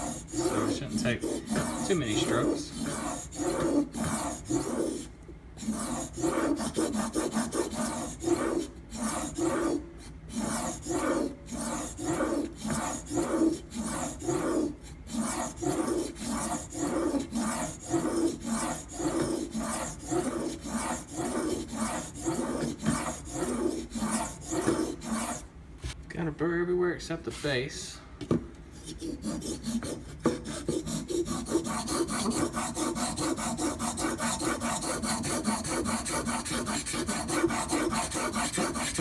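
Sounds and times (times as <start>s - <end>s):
knife scraping on sharpening stone: 0.1s - 6.8s.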